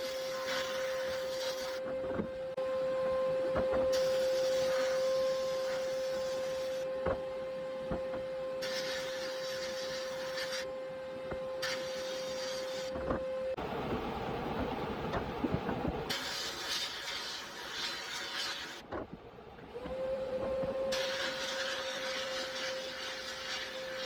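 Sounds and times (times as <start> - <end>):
steady motor hum: 0.0 - 16.4, 18.8 - 24.0
high hiss bursts: 8.6 - 10.7, 16.1 - 18.8.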